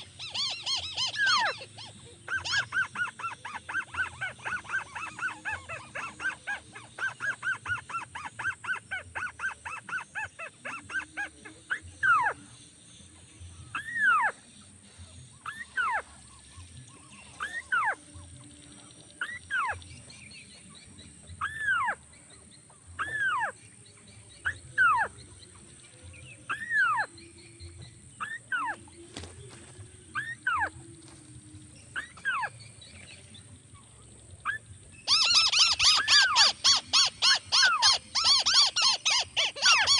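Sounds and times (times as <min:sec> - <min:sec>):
crake calling: 0:00.0 - 0:12.7, 0:32.0 - 0:39.9.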